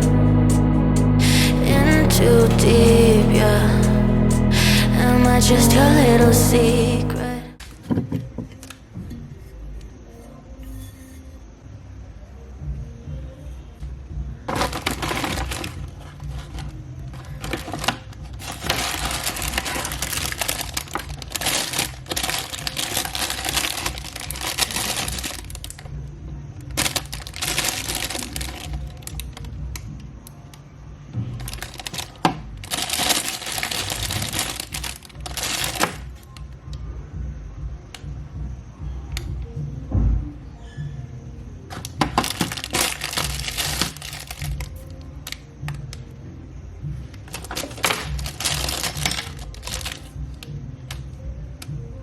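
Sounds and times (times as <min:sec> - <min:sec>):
packaging rustling and crinkling: 0:14.5 - 0:25.8, 0:26.8 - 0:29.3, 0:31.4 - 0:36.1, 0:41.7 - 0:44.9, 0:47.3 - 0:50.2.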